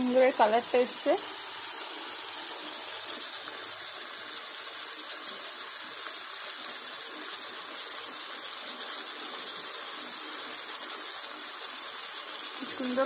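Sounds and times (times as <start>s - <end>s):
curry sizzling in oil: 0.0s - 13.0s.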